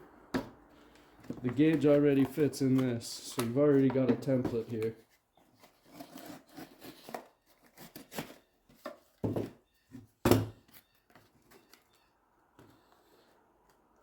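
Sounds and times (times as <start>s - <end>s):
hard parts knocking on workbench: 3.8s - 4.7s.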